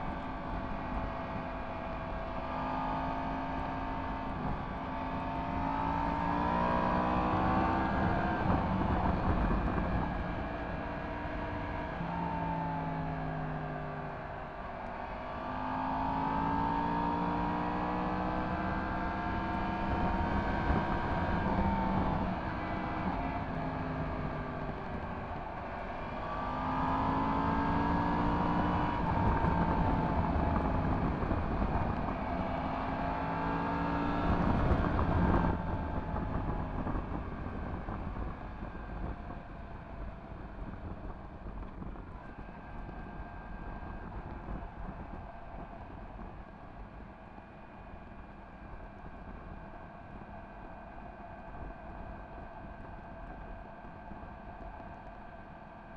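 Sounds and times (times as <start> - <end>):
wind noise: 4.2 - 12.3, 17.5 - 47.1.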